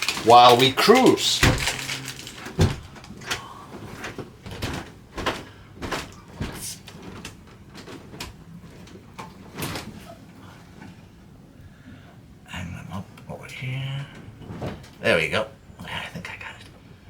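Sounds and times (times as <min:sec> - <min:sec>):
knocks and clicks of handling: 0:00.0 - 0:10.1.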